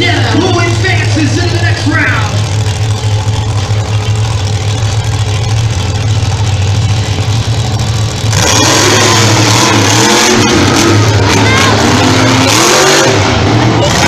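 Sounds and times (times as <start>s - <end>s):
monster truck engines revving: 0.0s - 14.0s.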